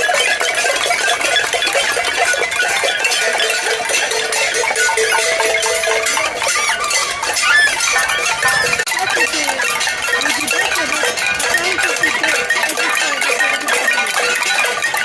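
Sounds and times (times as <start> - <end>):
pots and pans clattering: 0.0 - 15.0
held tones: 3.0 - 13.2.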